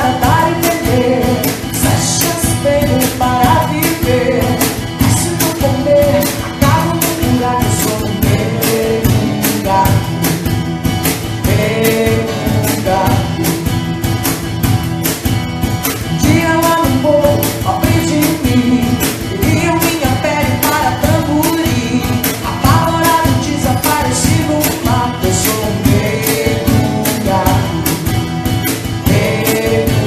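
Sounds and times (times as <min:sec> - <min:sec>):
person singing: 0:00.0 - 0:14.4, 0:16.1 - 0:30.0
guitar: 0:00.0 - 0:30.0
steady drum beat: 0:00.0 - 0:30.0.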